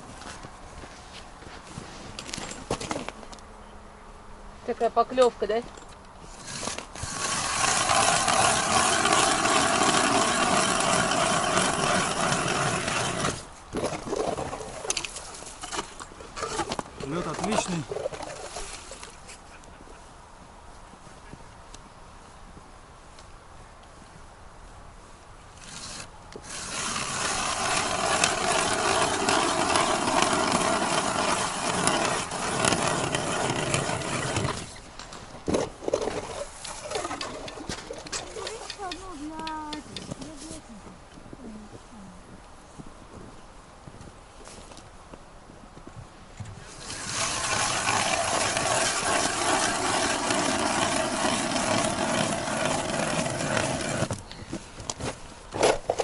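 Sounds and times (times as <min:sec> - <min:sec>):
ice auger drilling: 0:06.3 - 0:18.7, 0:25.6 - 0:34.8, 0:35.5 - 0:39.0, 0:46.6 - 0:54.2.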